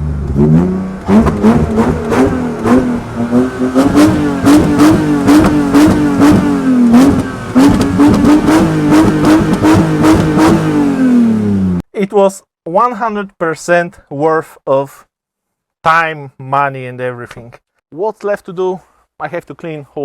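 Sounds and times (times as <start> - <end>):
car engine revving: 0.0 - 11.8.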